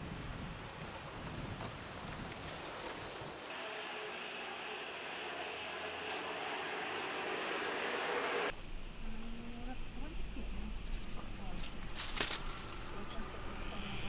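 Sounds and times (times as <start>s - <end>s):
faint outdoor background noise: 0.0s - 14.0s
insect chorus chirring: 3.4s - 14.0s.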